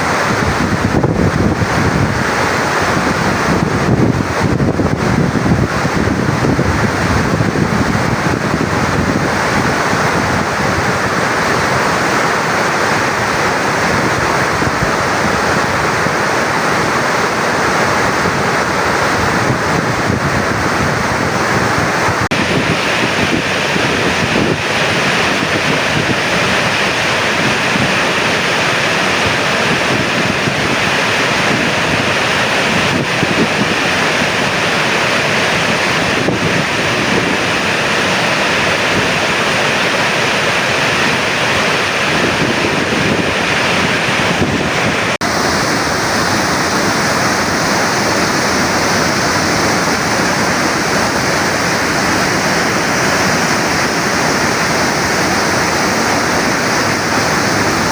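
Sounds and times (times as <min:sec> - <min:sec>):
water rushing from spillway: 0:00.0 - 0:57.9.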